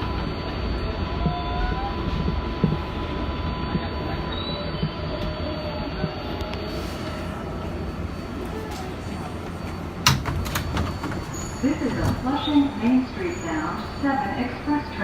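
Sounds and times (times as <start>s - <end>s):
subway train rumbling on rails: 0.0s - 15.0s
faint wheel squeal: 10.9s - 14.0s.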